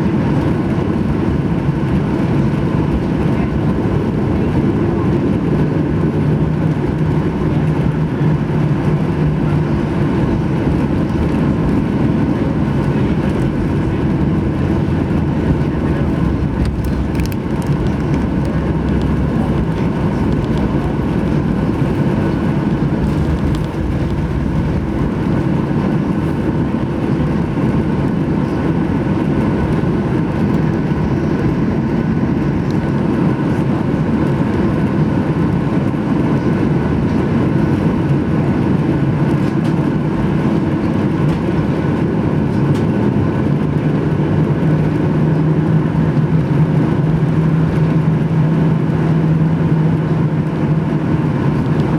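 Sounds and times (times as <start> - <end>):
airplane cabin engine rumble: 0.0 - 51.9
low hum: 1.9 - 32.8.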